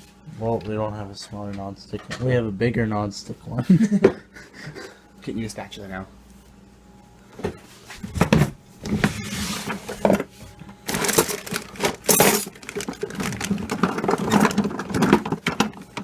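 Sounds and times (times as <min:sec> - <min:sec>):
kitchen utensils clattering: 0:10.9 - 0:15.8.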